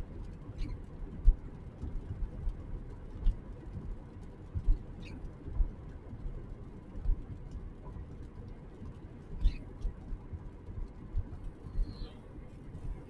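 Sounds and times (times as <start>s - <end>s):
low rumble: 0.0s - 13.0s
wavering bird chirps: 9.4s - 9.7s, 11.7s - 12.2s.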